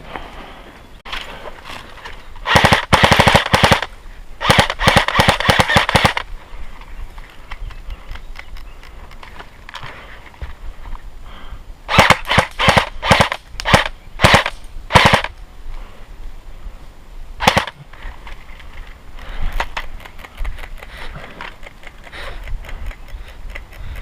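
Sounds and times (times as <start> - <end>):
airsoft gun shots: 2.4 - 6.2, 11.9 - 15.3, 17.4 - 17.8
rapid clicking: 19.5 - 24.0.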